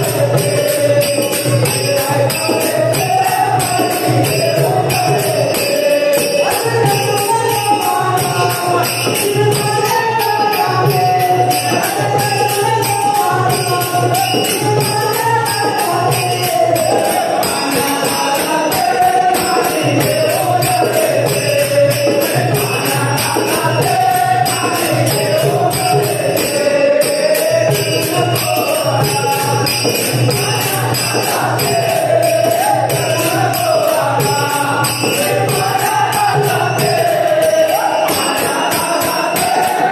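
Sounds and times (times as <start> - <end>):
jingling hand cymbals: 0.0 - 39.9.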